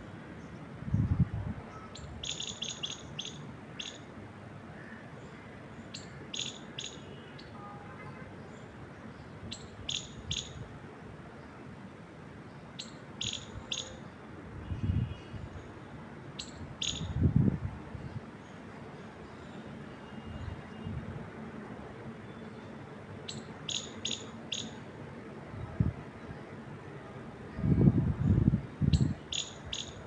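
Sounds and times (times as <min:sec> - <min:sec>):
wind through trees: 0:00.0 - 0:30.0
small birds chirping: 0:01.9 - 0:04.0, 0:23.3 - 0:24.8, 0:29.0 - 0:30.0.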